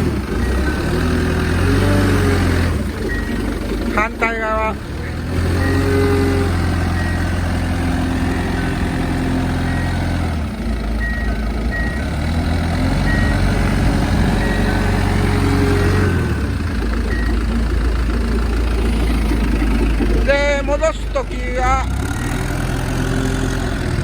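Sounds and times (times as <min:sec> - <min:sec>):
forklift diesel engine running: 0:00.0 - 0:24.0.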